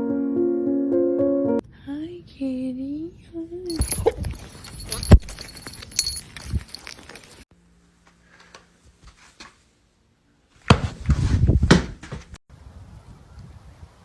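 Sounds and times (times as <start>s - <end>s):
knocks and clattering: 10.7s - 12.4s.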